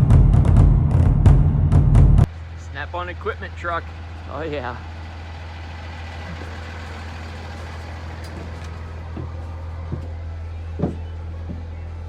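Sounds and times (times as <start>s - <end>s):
truck engine idling: 2.2s - 12.0s
faint knocks: 6.3s - 10.2s.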